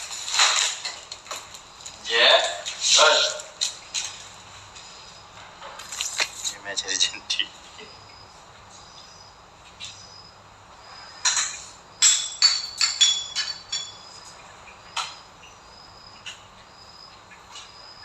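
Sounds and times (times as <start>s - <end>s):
sharp ringing clinks and taps: 11.2s - 14.4s.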